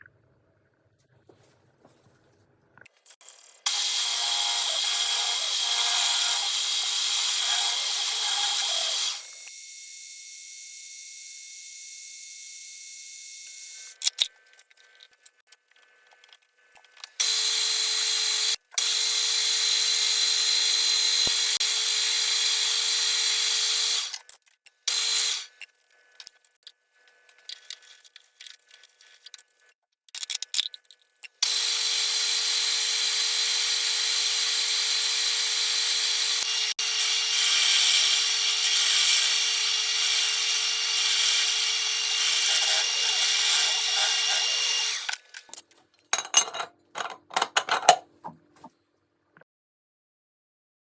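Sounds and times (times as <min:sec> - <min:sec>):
milling machine cutting metal: 0:03.6 - 0:09.4, 0:31.4 - 0:45.2.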